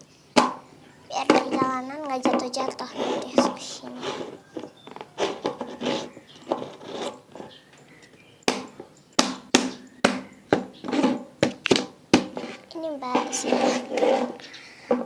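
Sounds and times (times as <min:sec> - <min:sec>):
soft rustling and handling: 0:00.7 - 0:09.0, 0:10.8 - 0:15.0
plastic lid clicks and knocks: 0:01.2 - 0:02.6, 0:08.5 - 0:12.5.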